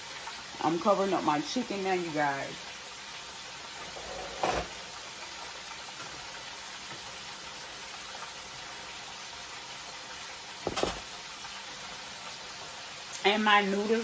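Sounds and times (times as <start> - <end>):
oil sizzling: 0.0 - 14.0
short knock: 10.6 - 11.0.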